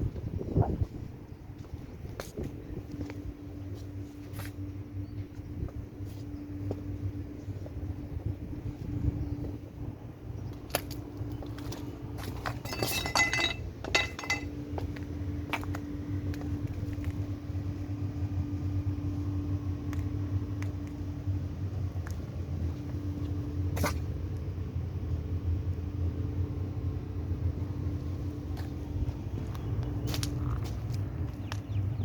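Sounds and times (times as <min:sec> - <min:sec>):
low machine hum: 0:00.0 - 0:32.0
light metallic clinks: 0:12.5 - 0:14.5.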